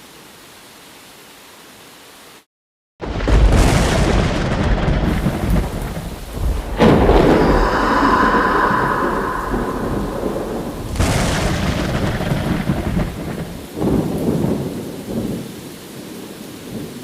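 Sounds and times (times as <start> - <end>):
rain hiss: 0.0 - 2.5, 3.5 - 17.0
deep thunder rumble: 3.0 - 15.2.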